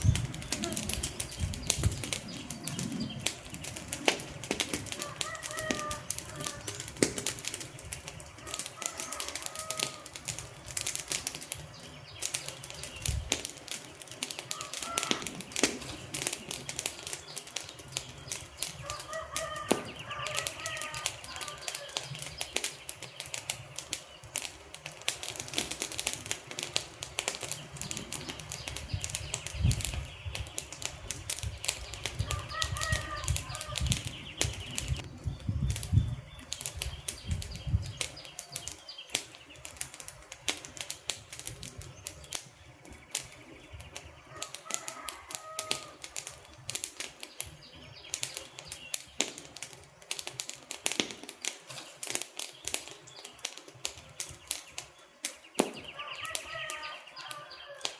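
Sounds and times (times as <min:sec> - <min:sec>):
bird calling: 0:00.0 - 0:07.0, 0:07.7 - 0:10.3, 0:13.9 - 0:23.4, 0:31.7 - 0:35.2, 0:54.2 - 0:57.9
wood fire crackling and popping: 0:00.0 - 0:57.9.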